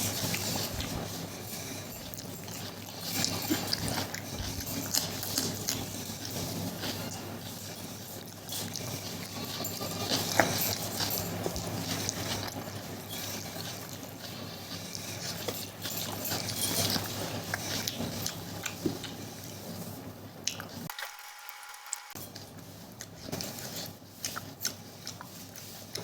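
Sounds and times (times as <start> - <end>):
person chewing and smacking: 1.9 - 7.2, 10.0 - 19.6, 20.4 - 26.0.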